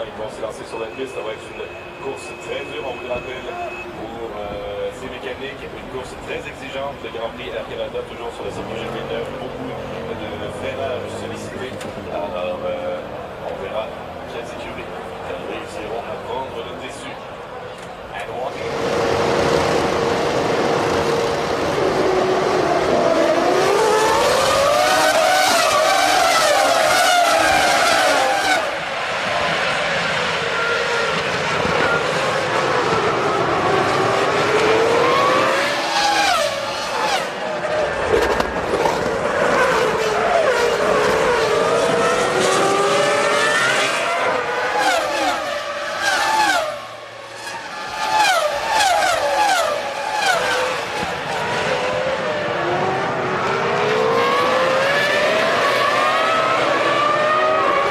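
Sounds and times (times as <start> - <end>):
racing car engines revving: 0.0 - 57.9.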